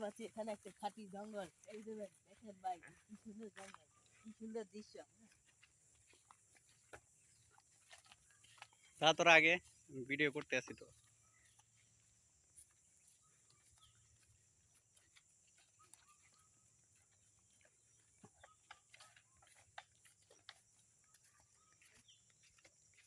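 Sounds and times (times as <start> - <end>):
small clicks and ticks: 17.6 - 23.0.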